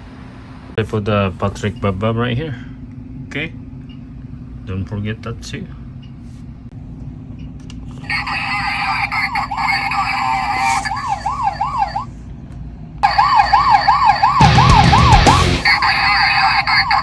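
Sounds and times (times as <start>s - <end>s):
toy police siren yelping: 8.1s - 12.1s, 13.0s - 17.0s.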